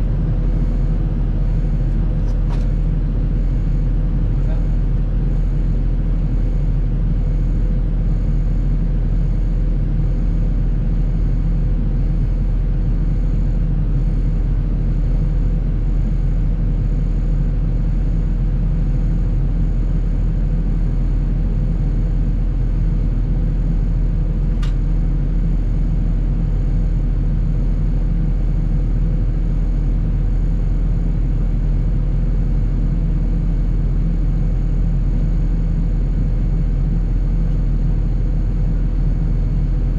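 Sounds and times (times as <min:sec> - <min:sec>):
sharp click: 0:24.6 - 0:24.8.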